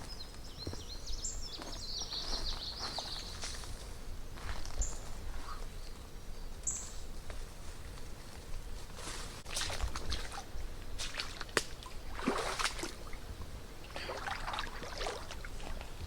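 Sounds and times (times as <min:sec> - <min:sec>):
songbird chirping: 0:00.0 - 0:07.2
faint rustles: 0:06.8 - 0:09.5.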